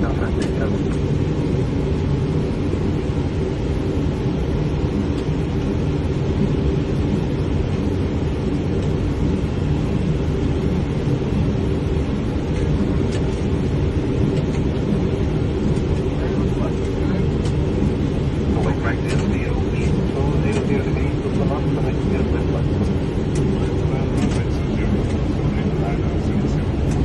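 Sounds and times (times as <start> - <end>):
airflow and engines rumbling: 0.0 - 27.0
faint steady hum: 0.0 - 27.0.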